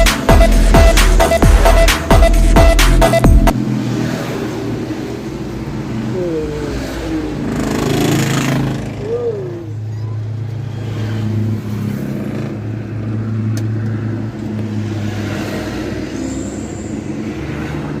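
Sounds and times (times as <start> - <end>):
truck engine humming: 0.0 - 3.6.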